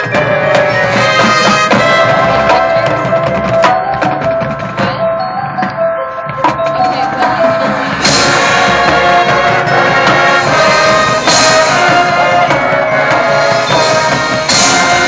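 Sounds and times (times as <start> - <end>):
brass playing held chords: 0.0 - 3.6, 7.2 - 15.0
drumline percussion: 0.0 - 15.0
cymbal crashes: 7.6 - 15.0.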